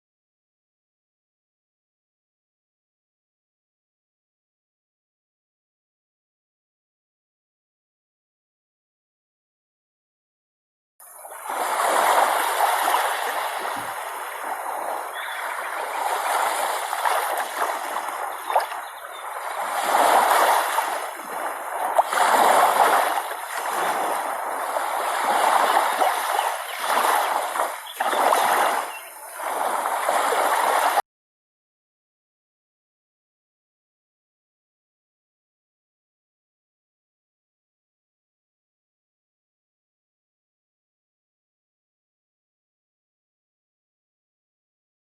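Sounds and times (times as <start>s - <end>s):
water splashing: 11.1s - 31.0s.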